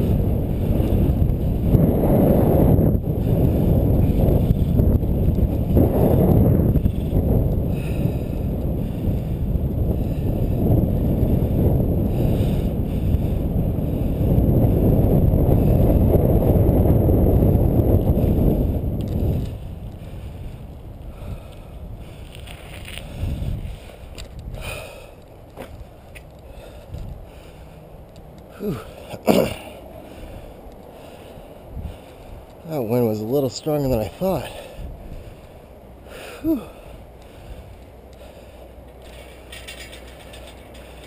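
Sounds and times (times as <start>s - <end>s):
wind buffeting microphone: 0.0s - 41.0s
faint rattles: 38.9s - 41.0s.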